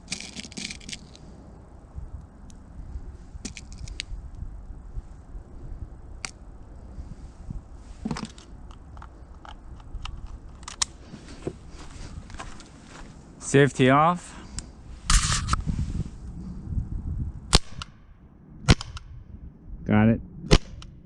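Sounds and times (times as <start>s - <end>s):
low steady rumble: 0.0s - 21.0s
light clicks and handling noise: 3.4s - 4.1s, 8.0s - 13.1s
scrape: 15.0s - 16.2s.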